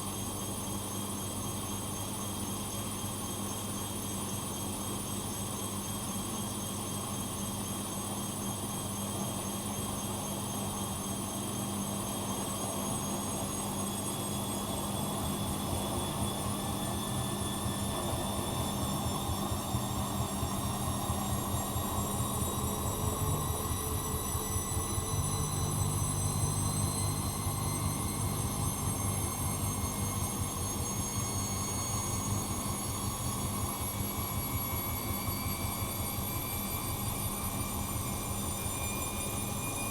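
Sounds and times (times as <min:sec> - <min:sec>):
washing machine spinning: 0:12.1 - 0:39.9
steady low hum: 0:14.6 - 0:39.9.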